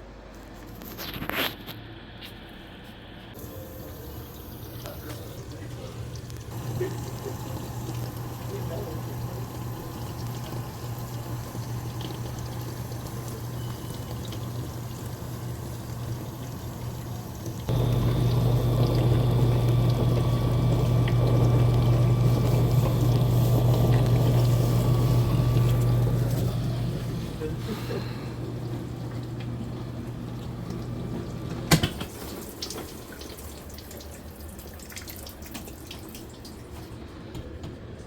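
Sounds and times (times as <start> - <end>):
churning water: 3.4 - 37.1
dishwasher filling with water: 3.4 - 37.3
wash motor humming: 3.4 - 38.0
low hum: 17.7 - 30.5.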